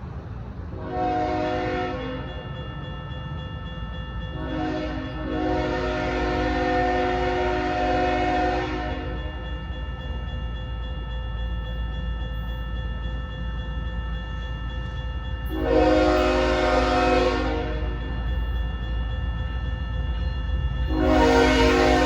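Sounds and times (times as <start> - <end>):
freight train rumble: 0.0 - 22.0
train horn blast: 0.8 - 2.2, 4.4 - 9.3, 15.5 - 18.1, 20.9 - 22.0.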